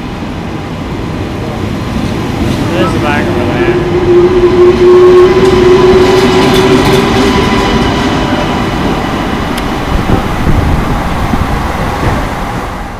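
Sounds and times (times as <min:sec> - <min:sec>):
train rolling rumble with hum: 0:00.0 - 0:12.9
train wheel clicks: 0:09.5 - 0:10.2.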